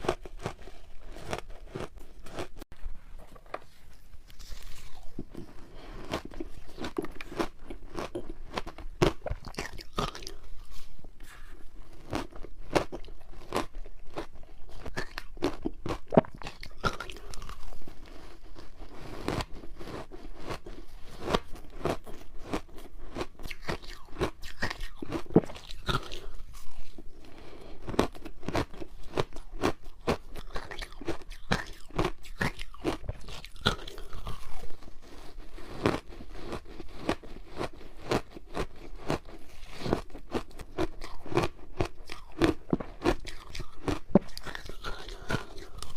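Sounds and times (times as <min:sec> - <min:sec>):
ice being chewed: 0:00.0 - 0:45.9.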